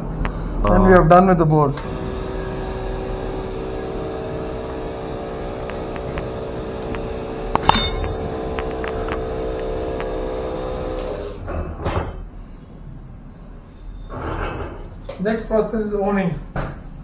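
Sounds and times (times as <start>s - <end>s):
boring machine humming: 0.1s - 11.8s
sharp metallic clink: 7.6s - 8.3s.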